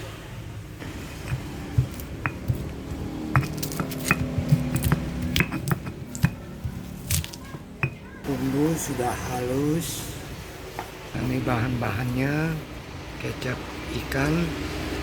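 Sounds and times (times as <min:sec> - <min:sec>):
utensils clicking against bowl: 0:01.2 - 0:08.0.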